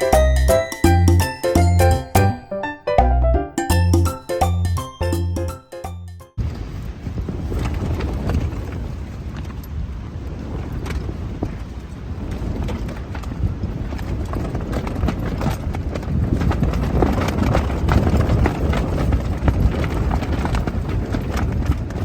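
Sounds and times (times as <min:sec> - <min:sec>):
wind buffeting microphone: 0:06.4 - 0:22.0.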